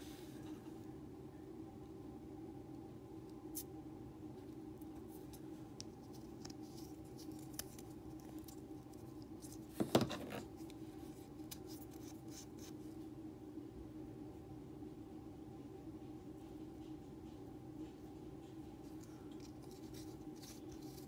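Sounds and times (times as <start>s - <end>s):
faint steady hum: 0.0s - 21.0s
hands handling items on a workbench: 5.8s - 12.0s.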